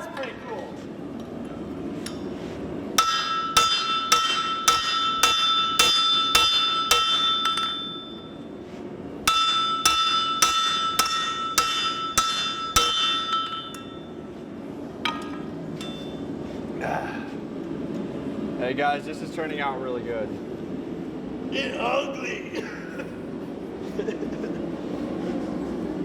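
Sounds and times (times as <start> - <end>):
forging blows on hot steel: 2.0 - 16.4
anvil ringing: 3.0 - 8.5, 9.3 - 14.3, 15.1 - 16.3.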